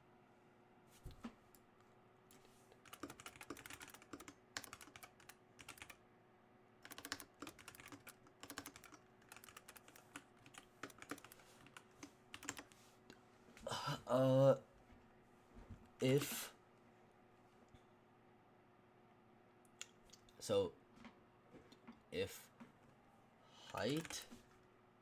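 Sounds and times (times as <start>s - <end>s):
typing on a computer keyboard: 2.8s - 6.0s, 6.8s - 12.7s, 23.7s - 24.4s.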